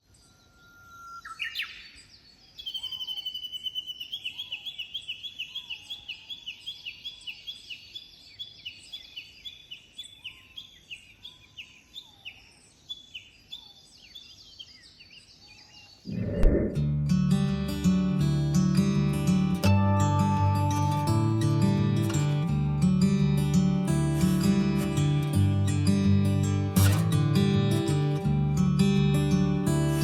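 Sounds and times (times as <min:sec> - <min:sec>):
lower whistled bird calls: 0:00.1 - 0:07.7.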